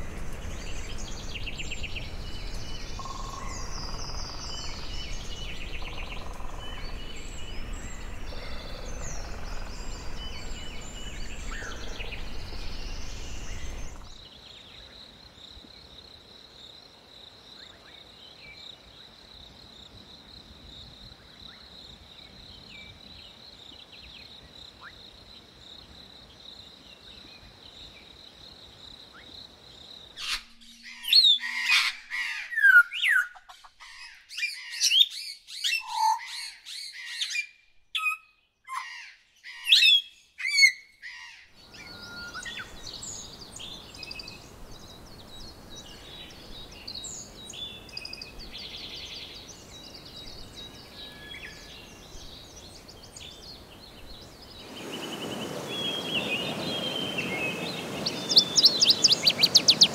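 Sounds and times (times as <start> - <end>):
birds chirping: 0.0 - 14.4, 41.4 - 59.9.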